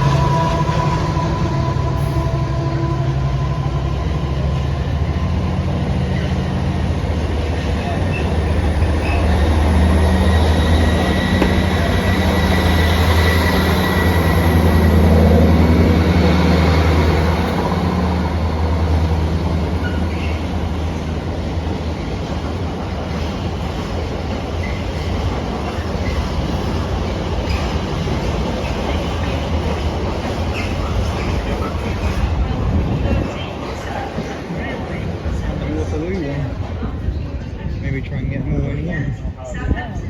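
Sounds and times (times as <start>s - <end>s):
freight train rumbling by: 0.0s - 40.0s
high wheel squeal: 7.8s - 15.6s, 30.4s - 31.7s.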